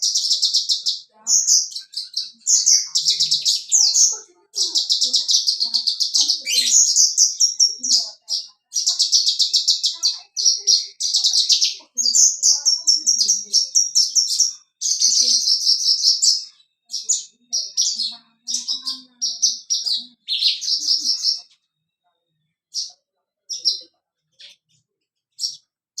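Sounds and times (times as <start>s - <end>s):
lark trilling song: 0.0s - 21.5s.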